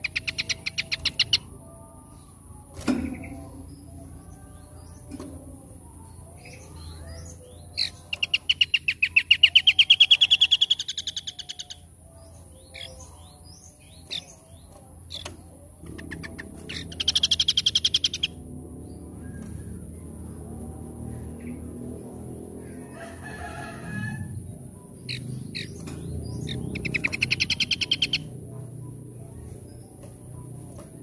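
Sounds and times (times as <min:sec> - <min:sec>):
songbird trilling: 0:06.8 - 0:11.8, 0:15.9 - 0:18.4, 0:25.0 - 0:28.6.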